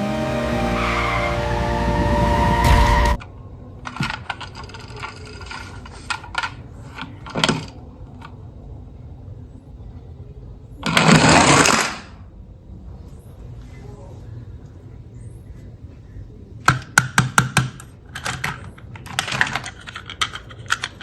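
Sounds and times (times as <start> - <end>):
noisy burst: 0.0 - 4.2
toy pieces clattering: 18.1 - 21.0.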